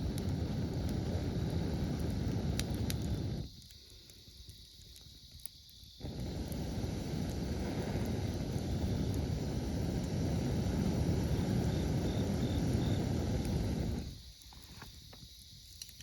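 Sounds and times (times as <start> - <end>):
steady low rumble: 0.0 - 3.5, 6.0 - 14.1
campfire crackling and popping: 0.0 - 16.0.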